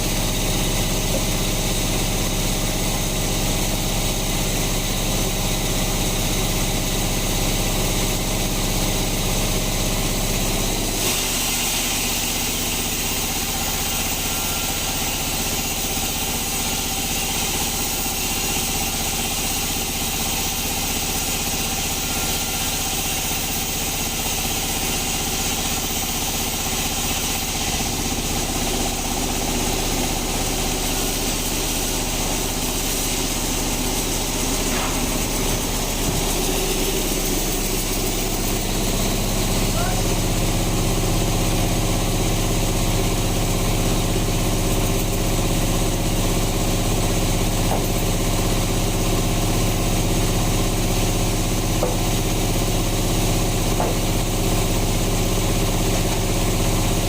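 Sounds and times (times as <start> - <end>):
band sawmill running: 0.0 - 57.0.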